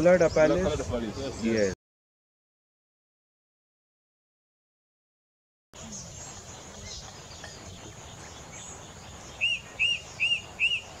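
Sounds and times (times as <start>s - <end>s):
small birds chirping: 0.0s - 1.8s, 5.8s - 11.0s.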